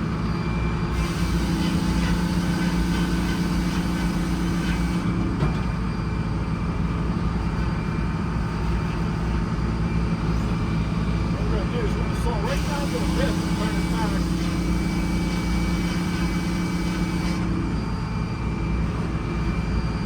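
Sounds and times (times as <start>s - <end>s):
bus engine running: 0.0s - 20.0s.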